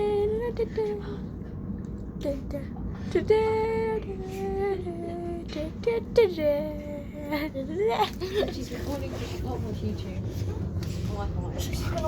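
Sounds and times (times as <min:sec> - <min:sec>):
moving train rumble: 0:00.0 - 0:12.0
girl singing long notes: 0:02.2 - 0:08.0.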